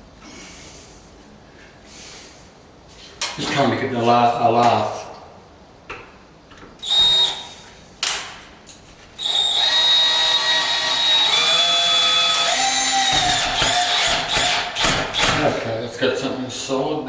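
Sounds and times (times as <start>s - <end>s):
power drill whining: 6.8s - 7.6s, 9.2s - 15.4s.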